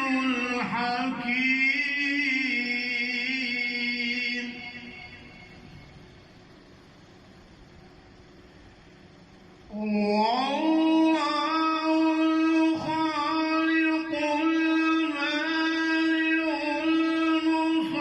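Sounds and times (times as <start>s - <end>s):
man chanting unaccompanied: 0.0s - 5.6s, 9.7s - 18.0s.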